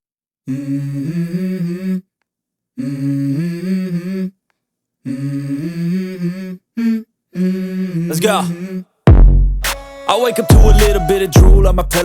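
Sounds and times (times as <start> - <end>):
person humming a melody: 0.5 - 2.0, 10.4 - 12.0.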